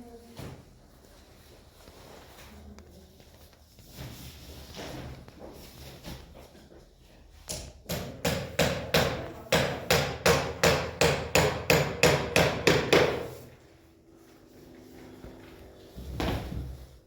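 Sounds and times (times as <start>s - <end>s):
hammering: 7.5s - 13.5s.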